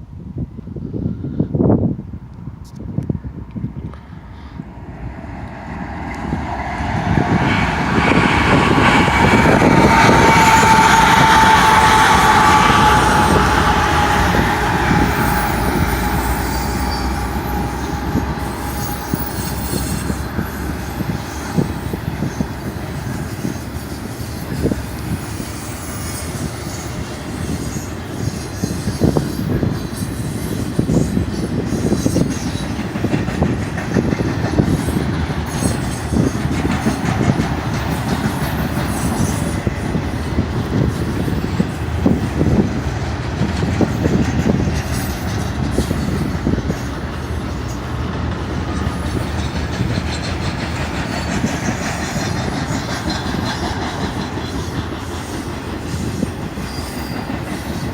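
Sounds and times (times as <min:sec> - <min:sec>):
diesel locomotives passing: 0:00.0 - 0:57.9
freight cars rumbling past: 0:03.7 - 0:26.0
high tone sliding lower: 0:04.6 - 0:26.7
train wheels clicking: 0:05.3 - 0:57.9.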